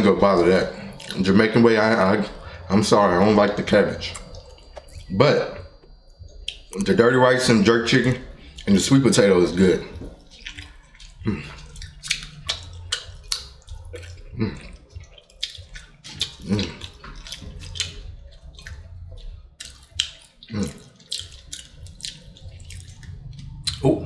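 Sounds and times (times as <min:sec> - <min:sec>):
low steady hum: 0:00.0 - 0:24.0
wet chewing and lip-smacking: 0:00.4 - 0:07.0, 0:08.2 - 0:24.0
sharp mouth clicks: 0:04.0 - 0:06.9, 0:10.0 - 0:24.0.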